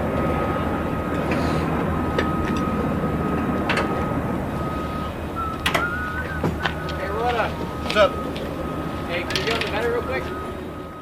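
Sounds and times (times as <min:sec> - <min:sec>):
machinery low rumble: 0:00.0 - 0:11.0
sharp knocks and clanks: 0:09.3 - 0:09.9.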